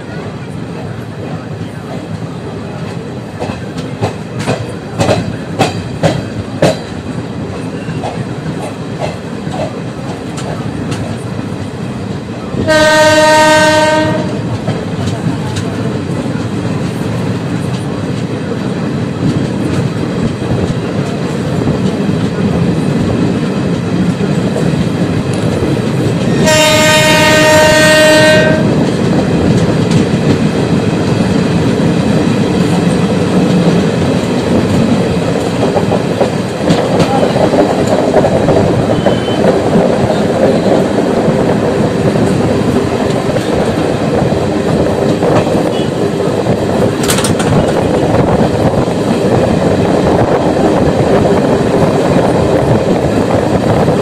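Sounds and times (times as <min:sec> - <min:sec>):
train wheels rumbling on rails: 0:00.0 - 0:54.0
train horn: 0:12.6 - 0:14.5, 0:26.4 - 0:28.8.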